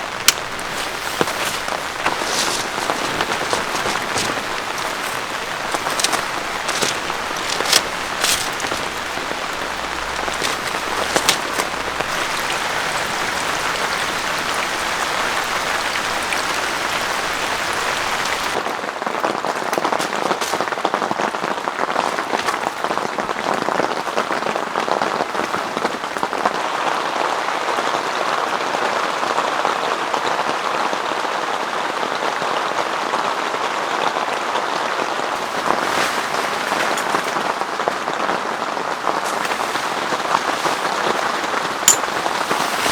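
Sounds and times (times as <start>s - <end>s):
heavy rain falling: 0.0s - 23.6s.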